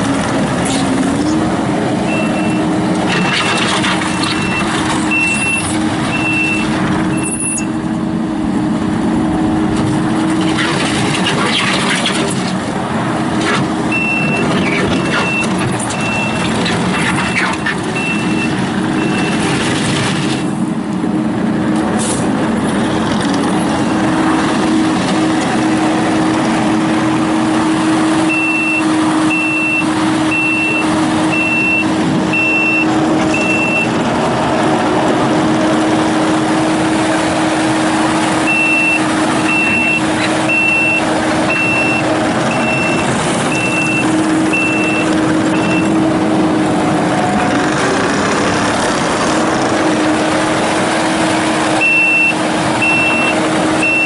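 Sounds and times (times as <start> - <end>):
diesel engine running: 0.0 - 54.0
backup alarm beeping: 28.3 - 33.9, 38.5 - 46.0, 51.8 - 54.0.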